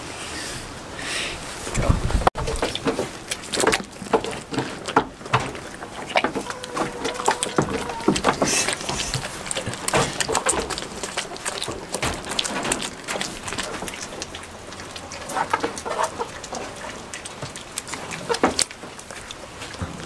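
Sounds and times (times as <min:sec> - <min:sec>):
rain pattering: 0:01.7 - 0:20.0
water drips and taps: 0:02.4 - 0:14.3.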